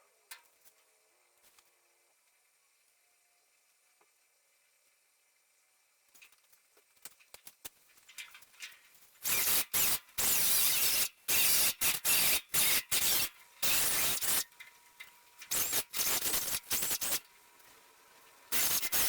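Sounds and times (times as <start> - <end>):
welding arc crackling: 9.2 - 14.5, 15.5 - 17.2, 18.5 - 19.0.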